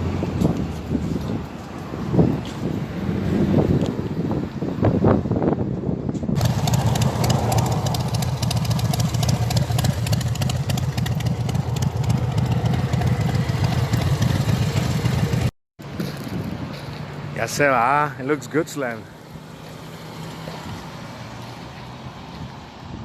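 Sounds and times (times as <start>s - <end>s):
pickup truck engine running: 6.4s - 15.5s.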